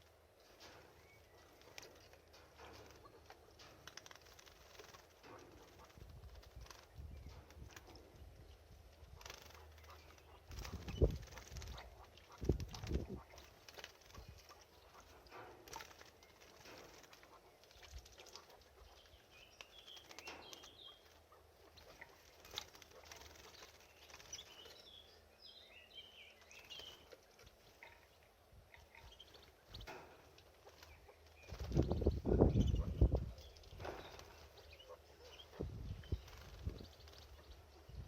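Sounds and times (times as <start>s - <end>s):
soft high bird chirps: 0.0s - 38.0s
wings fluttering in water: 1.4s - 8.2s, 8.9s - 24.8s, 29.0s - 37.5s.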